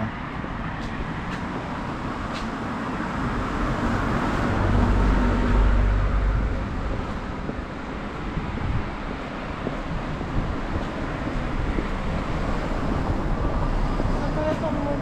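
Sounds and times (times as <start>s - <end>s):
vehicle passing: 0.0s - 15.0s.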